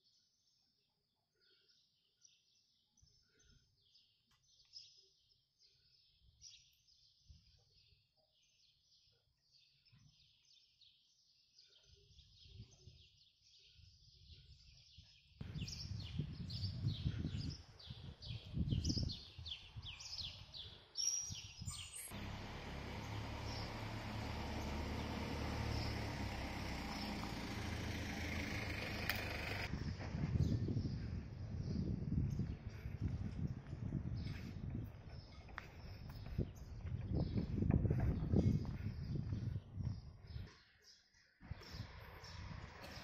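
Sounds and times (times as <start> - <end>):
small birds chirping: 1.4 - 29.7, 30.3 - 43.0
low rumble in gusts: 22.2 - 35.2.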